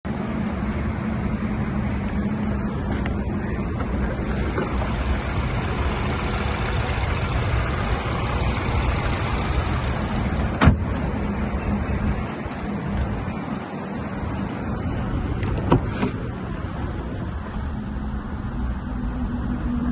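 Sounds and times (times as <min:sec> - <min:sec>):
car engine idling: 0:00.3 - 0:11.1.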